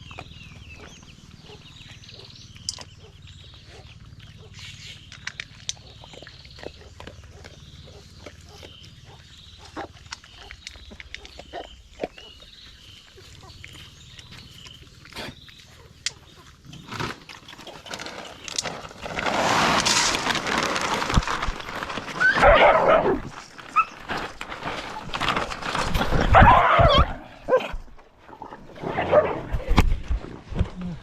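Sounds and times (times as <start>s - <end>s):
dog barking roughly: 22.2s - 23.9s, 26.3s - 27.7s, 29.0s - 29.4s.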